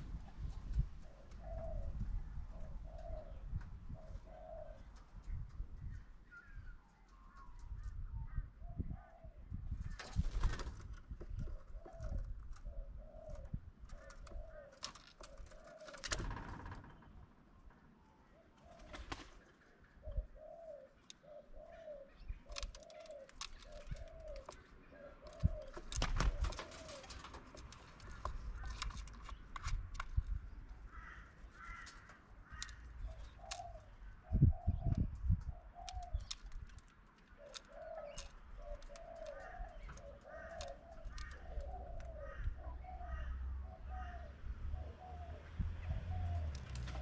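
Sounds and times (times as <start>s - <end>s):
birds chirping: 0.1s - 47.0s
dove cooing: 0.7s - 5.0s, 11.3s - 16.7s, 18.3s - 30.0s, 30.8s - 36.6s, 37.3s - 47.0s.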